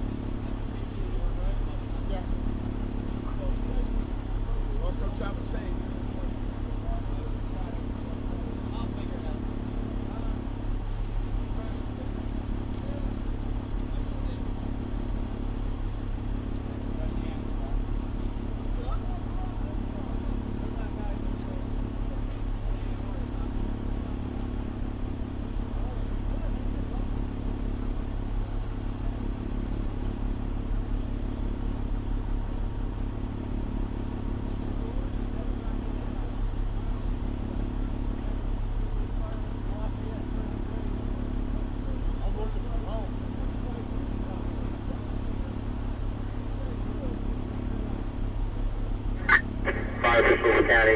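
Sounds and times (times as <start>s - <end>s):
fire engine engine running: 0.0s - 50.9s
diesel engine humming: 49.1s - 50.9s.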